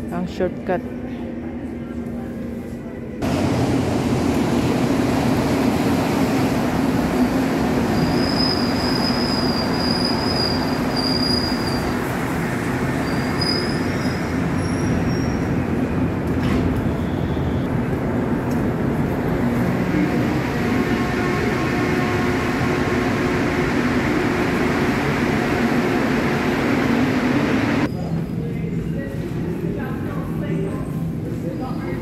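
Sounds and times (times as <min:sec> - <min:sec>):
metro train rumbling: 0:00.0 - 0:32.0
train wheel squeal: 0:07.8 - 0:12.1, 0:13.0 - 0:15.5, 0:16.9 - 0:17.6.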